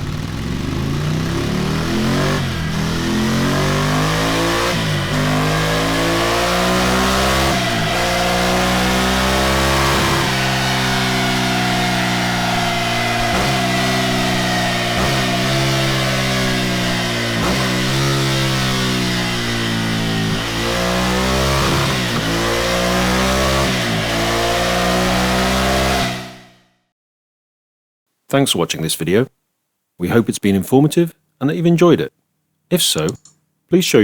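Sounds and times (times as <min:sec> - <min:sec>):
motorcycle engine revving: 0:00.0 - 0:26.7.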